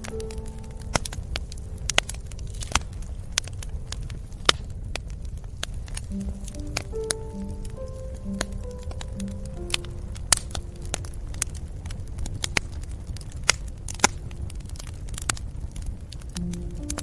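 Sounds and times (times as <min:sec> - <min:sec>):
soft held music notes: 0:00.0 - 0:03.1, 0:05.9 - 0:12.5, 0:16.3 - 0:17.0
wood fire crackling: 0:00.0 - 0:17.0.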